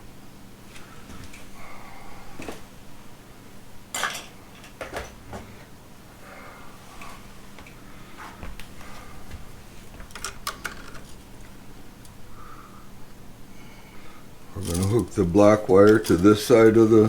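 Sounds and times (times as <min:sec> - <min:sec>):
wire handling noises: 0:07.0 - 0:12.2, 0:14.6 - 0:17.0.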